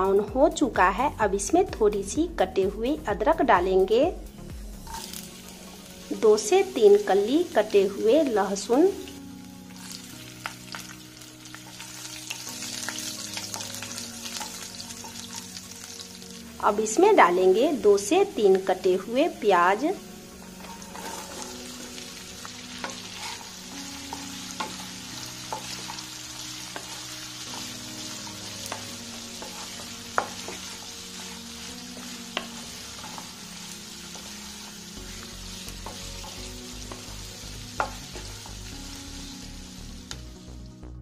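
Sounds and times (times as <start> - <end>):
onions sizzling in a frying pan: 0.0 - 40.8
wooden spatula scraping a pan: 20.3 - 37.1.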